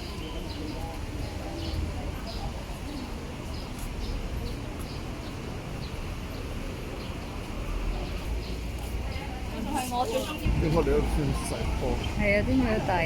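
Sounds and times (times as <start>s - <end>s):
street and crowd noise: 0.0s - 13.0s
small birds chirping: 11.4s - 13.0s.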